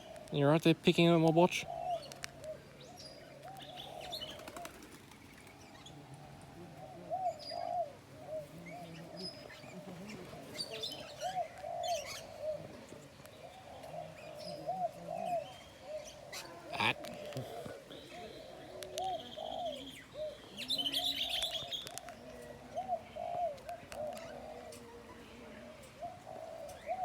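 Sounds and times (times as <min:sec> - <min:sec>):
bird calling: 0:00.0 - 0:27.0
wings fluttering: 0:04.0 - 0:05.6.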